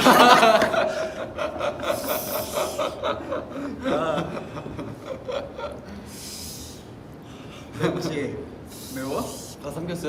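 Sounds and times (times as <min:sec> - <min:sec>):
young men laughing: 0:00.0 - 0:06.2, 0:07.6 - 0:08.4
hissing breath: 0:05.9 - 0:07.7, 0:08.6 - 0:09.6.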